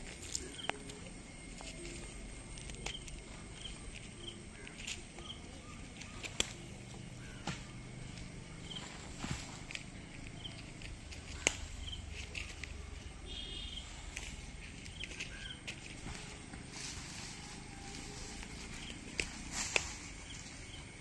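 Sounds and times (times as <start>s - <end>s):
small bird chirping: 0.2s - 16.5s.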